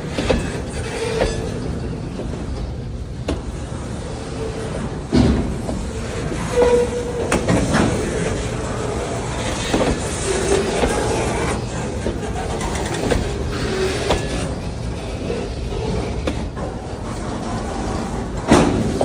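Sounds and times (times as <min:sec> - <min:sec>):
high wheel squeals: 0:00.3 - 0:02.1, 0:06.1 - 0:08.3
wheels clacking over rail joints: 0:05.0 - 0:14.5.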